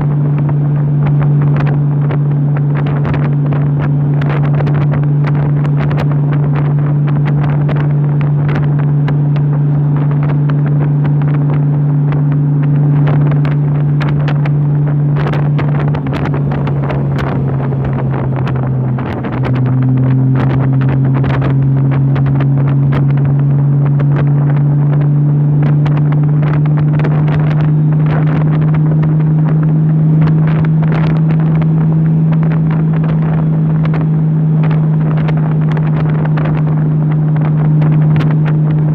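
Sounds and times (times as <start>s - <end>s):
motorcycle engine cruising: 0.0s - 38.9s
wind buffeting microphone: 0.0s - 38.9s.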